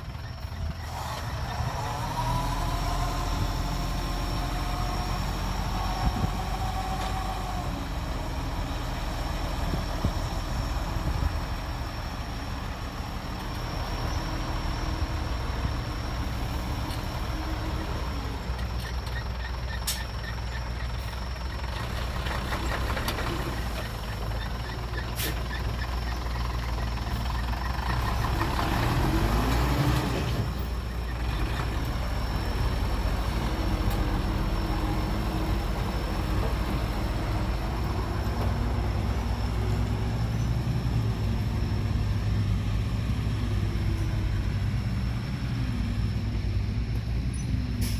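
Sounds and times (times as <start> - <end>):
heavy diesel machinery running: 0.0 - 47.9
engine revving: 0.8 - 11.6, 26.5 - 47.1.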